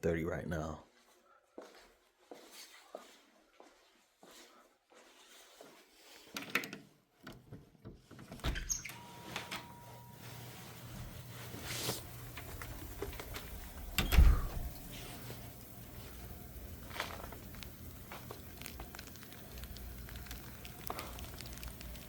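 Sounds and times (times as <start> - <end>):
door clicks and knocks: 13.9 - 14.8.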